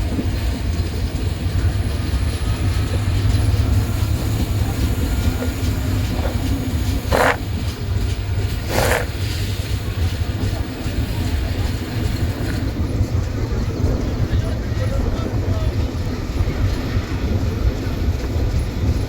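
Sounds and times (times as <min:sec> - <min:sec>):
train rumbling: 0:00.0 - 0:19.0
short noisy bursts: 0:04.4 - 0:07.7, 0:08.5 - 0:09.6.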